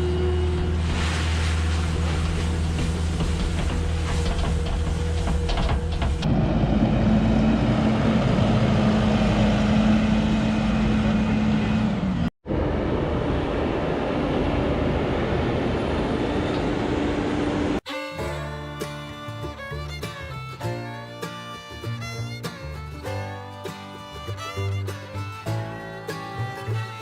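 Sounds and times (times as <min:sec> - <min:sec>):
heavy machinery engines running: 0:00.0 - 0:17.8.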